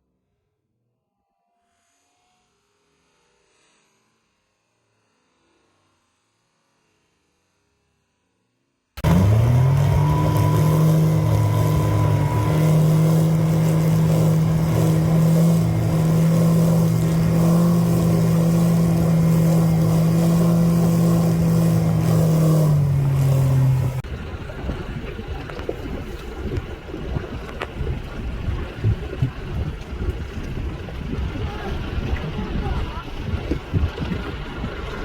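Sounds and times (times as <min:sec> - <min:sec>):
motorboat engine running: 0:09.0 - 0:35.0.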